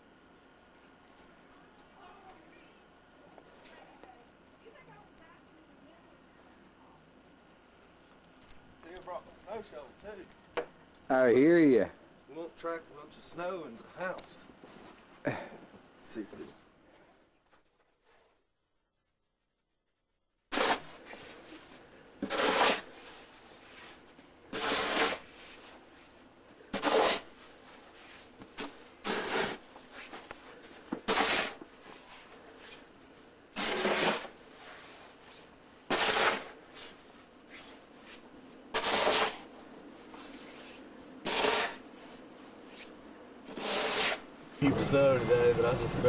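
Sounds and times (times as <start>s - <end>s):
crunching and scraping in snow: 33.6s - 46.0s.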